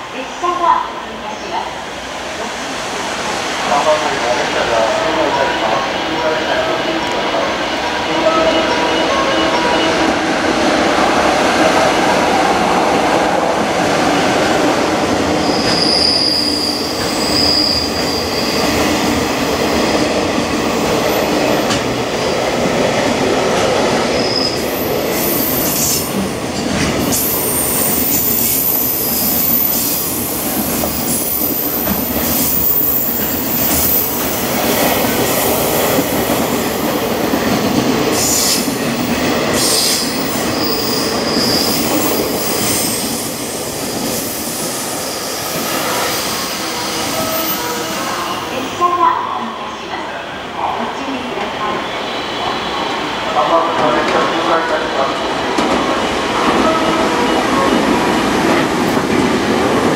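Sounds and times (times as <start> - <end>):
train rushing noise: 0.0 - 59.9
rail-joint clicks: 21.6 - 22.0.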